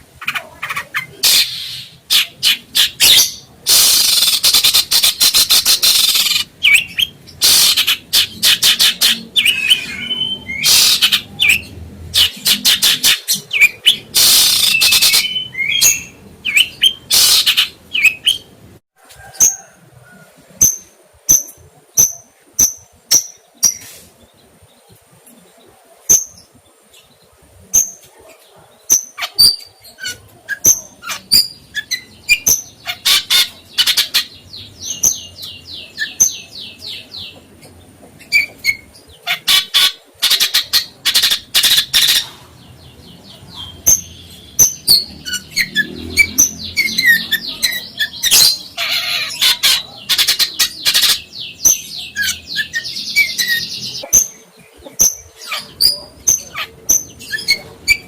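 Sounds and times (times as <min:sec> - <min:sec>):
bird high sharp chirps: 0:00.2 - 0:18.5, 0:43.4 - 0:58.0
songbird harsh chattering calls: 0:00.2 - 0:18.5, 0:29.0 - 0:37.6, 0:38.2 - 0:58.0.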